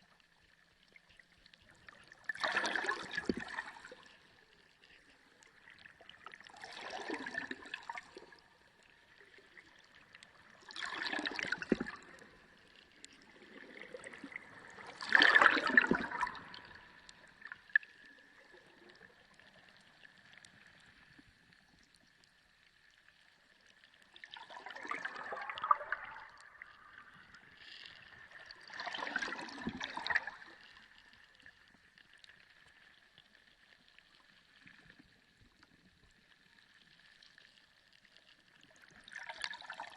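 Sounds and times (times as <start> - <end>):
water gurgling underwater: 0.8 - 23.3, 23.9 - 31.9.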